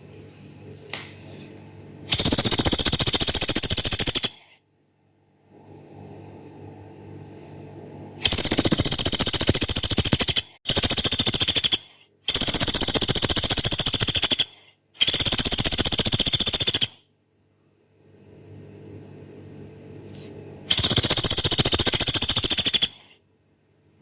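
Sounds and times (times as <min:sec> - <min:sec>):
woodpecker rattling call: 0:02.1 - 0:04.4, 0:08.2 - 0:17.0, 0:20.7 - 0:23.1.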